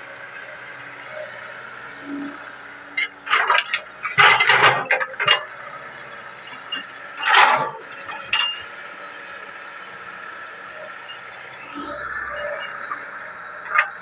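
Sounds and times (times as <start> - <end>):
excavator engine running: 0.0 - 14.0
metallic clanking and rattling: 3.0 - 8.7.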